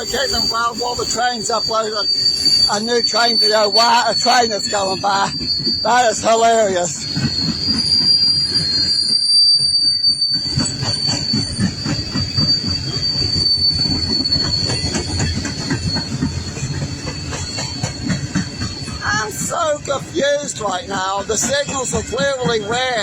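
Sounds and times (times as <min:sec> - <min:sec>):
high-pitched wheel squeal: 0:00.0 - 0:23.0
low rumble of train: 0:00.0 - 0:23.0
wheels clicking over rail joints: 0:10.4 - 0:23.0.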